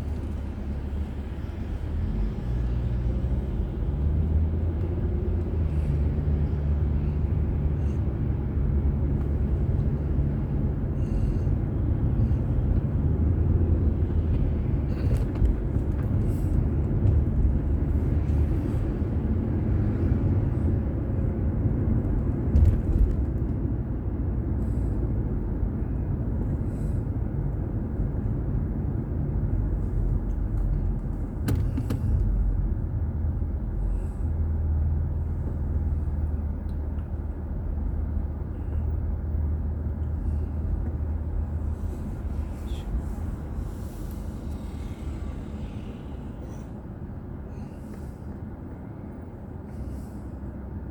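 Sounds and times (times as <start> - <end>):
car engine and road rumble: 0.0 - 50.9
car bump: 31.3 - 32.3.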